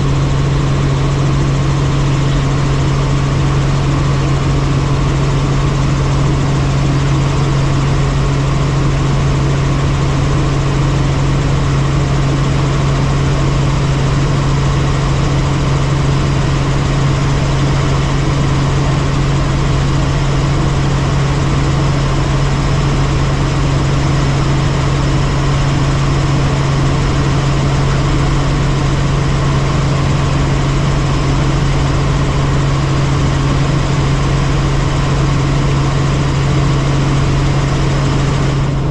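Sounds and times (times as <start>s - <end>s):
helicopter rotor and engine drone: 0.0s - 38.9s.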